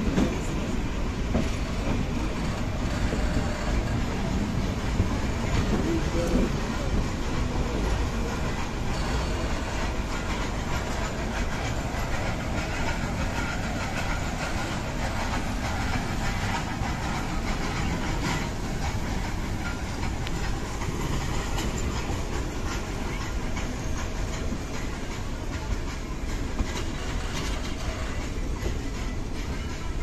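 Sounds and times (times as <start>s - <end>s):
faint clicks of wheels over rails: 0.0s - 30.0s
rumble and rattle of train coaches: 0.0s - 30.0s.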